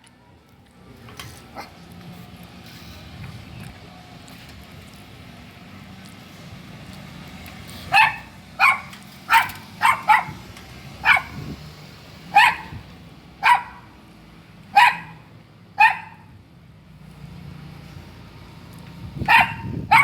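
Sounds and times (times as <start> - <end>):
dog barking: 7.9 - 10.4, 11.0 - 11.4, 12.3 - 12.8, 13.4 - 13.9, 14.8 - 15.2, 15.8 - 16.3, 19.3 - 20.0.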